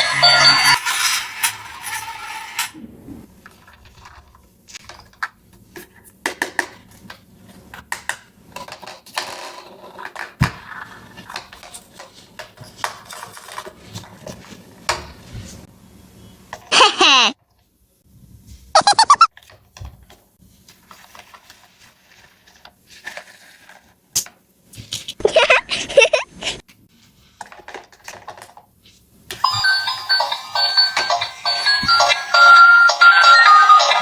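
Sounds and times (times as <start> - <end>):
background music: 29.5 - 34.0.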